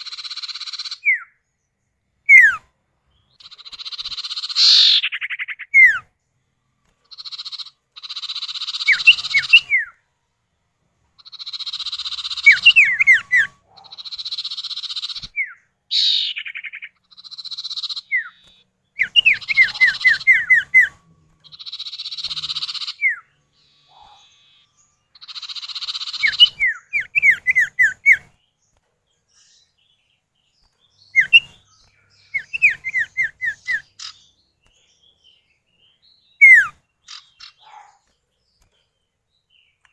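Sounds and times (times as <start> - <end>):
bird harsh rasping calls: 0.0 - 1.4, 2.3 - 6.1, 7.0 - 10.0, 11.2 - 28.4, 31.0 - 34.4, 35.9 - 38.2.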